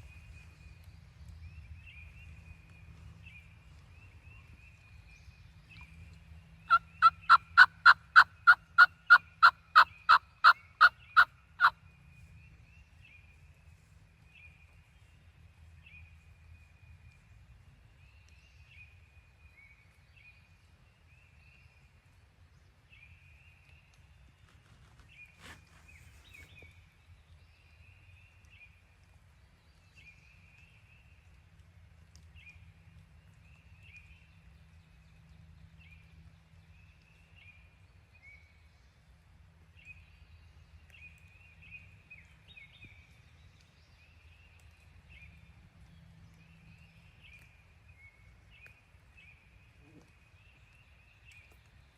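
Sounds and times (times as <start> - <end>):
faint songbirds chirping: 0.0 - 51.9.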